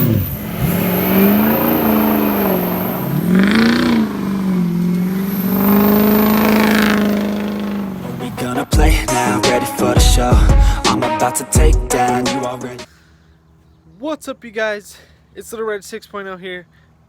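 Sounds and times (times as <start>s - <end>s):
diesel engine revving: 0.0s - 12.8s.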